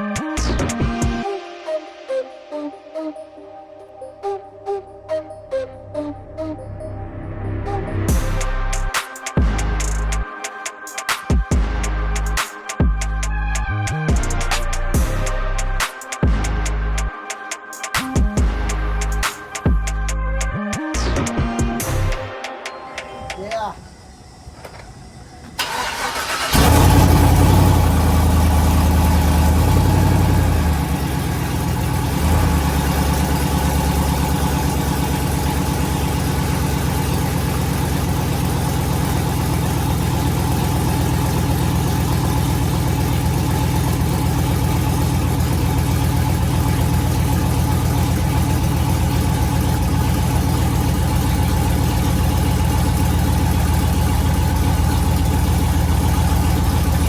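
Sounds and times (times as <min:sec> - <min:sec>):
truck engine idling: 0:06.1 - 0:10.3, 0:11.5 - 0:17.1, 0:18.4 - 0:22.2, 0:23.0 - 0:57.0
truck engine cranking: 0:23.8 - 0:57.0.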